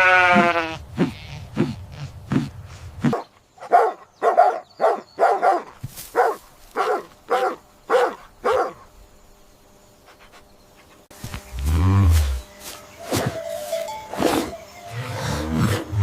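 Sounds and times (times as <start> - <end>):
dog barking: 3.1 - 8.8.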